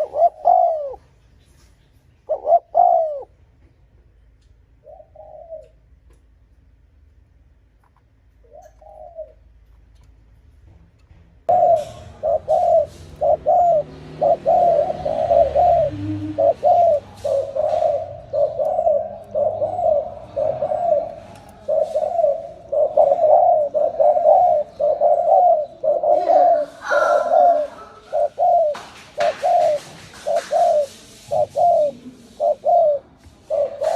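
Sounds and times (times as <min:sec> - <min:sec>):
dove cooing: 0:00.0 - 0:01.2, 0:02.2 - 0:03.4, 0:04.8 - 0:05.9, 0:08.4 - 0:09.5, 0:11.5 - 0:33.9.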